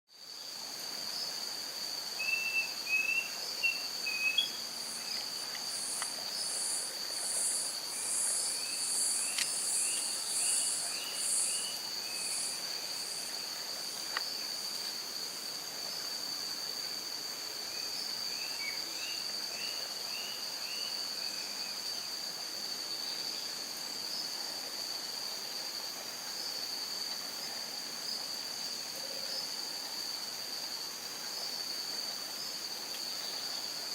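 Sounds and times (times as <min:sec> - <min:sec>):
insects buzzing high-pitched: 0:00.2 - 0:33.9
insect pulsing trill: 0:02.2 - 0:13.6.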